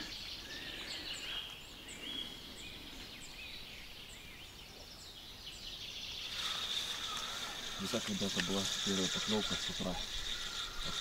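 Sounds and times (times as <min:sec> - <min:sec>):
bird chirping: 0:00.0 - 0:11.0
riverside ambience: 0:06.2 - 0:11.0.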